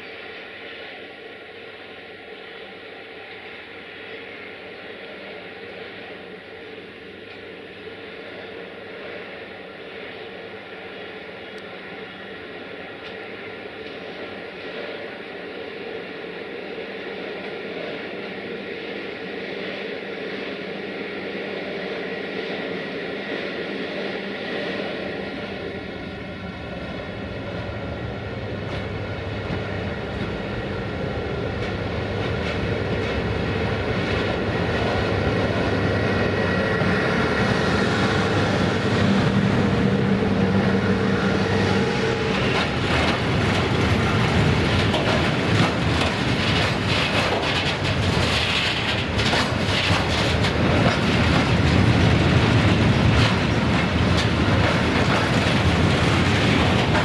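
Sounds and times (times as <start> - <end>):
electric locomotive hum: 0.0 - 57.0
wagon wheels clattering over rail joints: 42.5 - 57.0.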